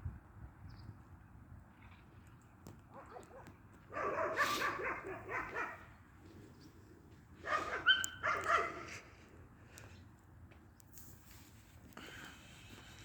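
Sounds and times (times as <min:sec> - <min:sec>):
dog barking: 0:02.9 - 0:05.9, 0:07.4 - 0:09.0.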